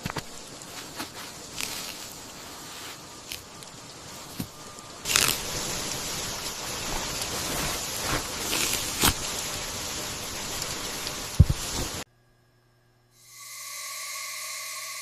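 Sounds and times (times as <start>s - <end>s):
sharp crunches and snaps: 0.0s - 9.5s
steady rain: 0.0s - 12.1s.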